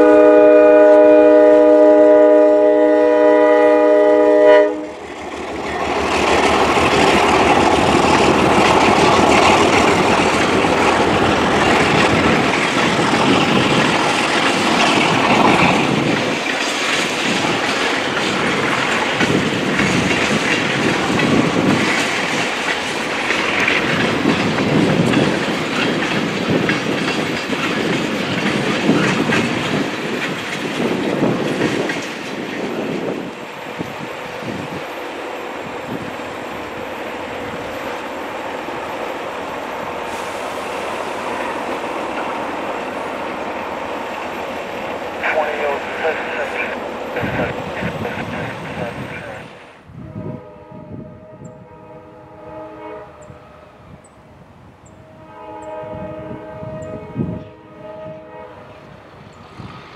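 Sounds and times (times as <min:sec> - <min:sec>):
diesel locomotive engine running: 0:00.0 - 0:49.7
wheels clacking over rails: 0:04.9 - 0:49.1.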